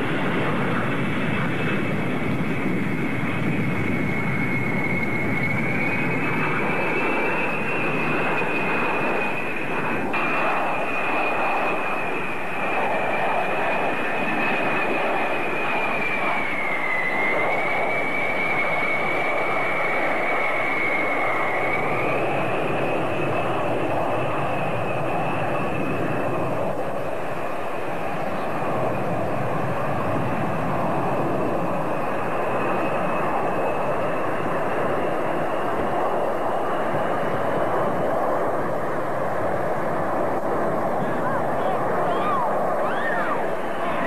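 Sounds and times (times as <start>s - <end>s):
aircraft engine whine: 0.0s - 44.0s.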